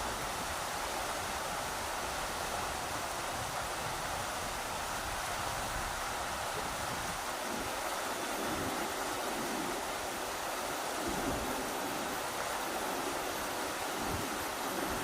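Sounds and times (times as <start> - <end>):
river water rushing: 0.0 - 15.0
wind buffeting microphone: 0.0 - 15.0.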